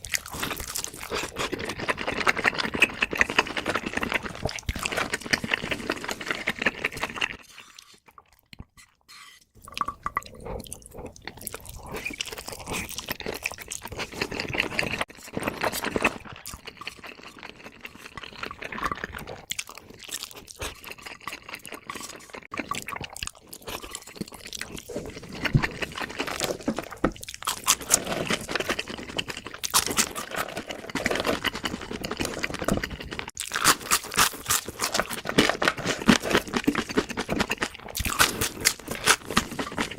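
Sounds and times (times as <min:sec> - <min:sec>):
wet mouth sounds: 0:00.0 - 0:15.1
chewing and crunching food: 0:00.0 - 0:39.9.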